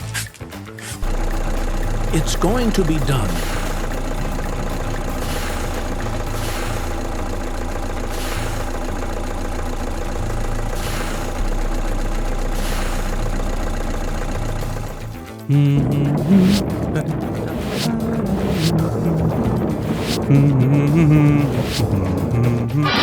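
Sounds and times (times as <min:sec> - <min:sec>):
engine idling: 0:01.0 - 0:23.0.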